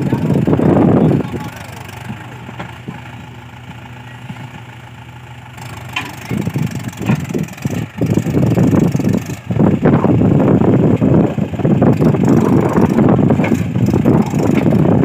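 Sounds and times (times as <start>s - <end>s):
diesel tractor engine idling: 0.0s - 15.0s
uneven engine rumbling: 0.0s - 15.0s.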